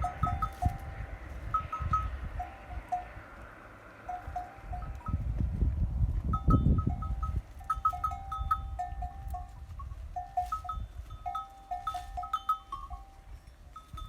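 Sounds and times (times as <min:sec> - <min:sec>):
livestock neck bells clinking: 0:00.0 - 0:05.4, 0:06.1 - 0:14.0
low rumble: 0:00.0 - 0:07.6.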